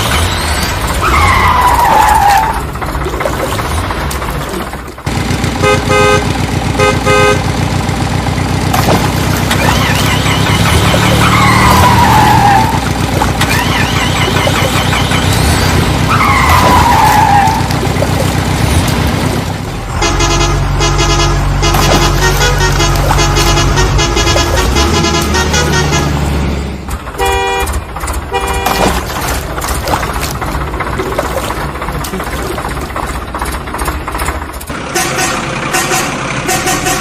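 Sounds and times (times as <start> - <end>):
falling squeals: 0.0 - 2.8, 9.5 - 17.7
heavy vehicle engine running: 0.0 - 37.0
rhythmic multi-tone horn: 5.6 - 7.5, 19.9 - 26.3, 27.2 - 29.1, 34.9 - 37.0
short horn honks: 5.6 - 7.5, 20.0 - 26.2, 27.2 - 29.0.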